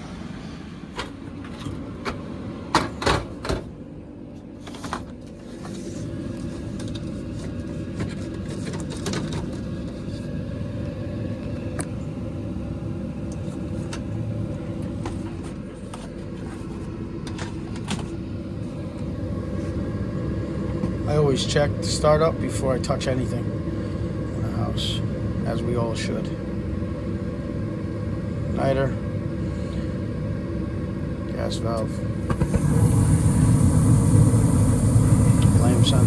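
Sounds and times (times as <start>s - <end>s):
furnace motor humming: 0.0s - 36.0s.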